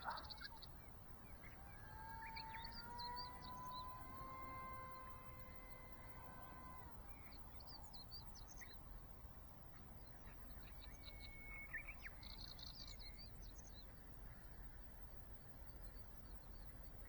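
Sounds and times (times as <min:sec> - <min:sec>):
faint bird chirps: 0:00.0 - 0:17.0
electric motor whining: 0:00.5 - 0:09.0.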